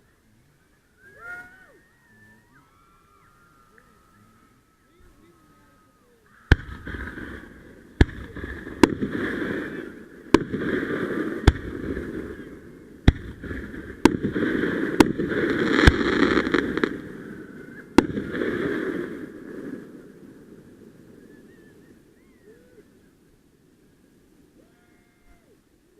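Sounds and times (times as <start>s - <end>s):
fireworks crackling: 3.5s - 22.2s
fireworks bangs: 6.4s - 22.1s.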